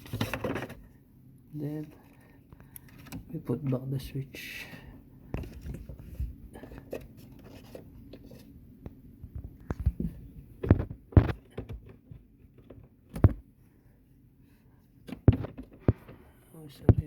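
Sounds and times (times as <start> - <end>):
plastic clicks and knocks: 9.3 - 13.4, 15.0 - 16.2.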